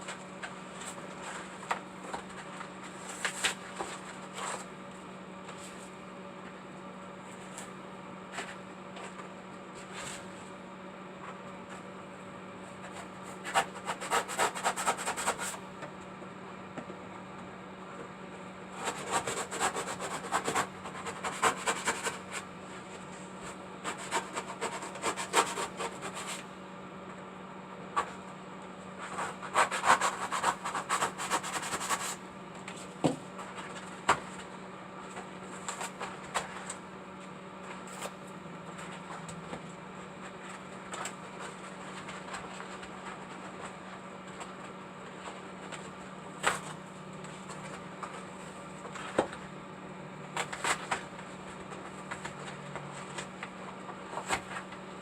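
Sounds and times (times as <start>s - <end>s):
hand scraping craft material: 0.0s - 4.7s, 12.8s - 15.6s, 18.7s - 26.5s, 29.0s - 34.4s
steady low hum: 0.0s - 55.0s.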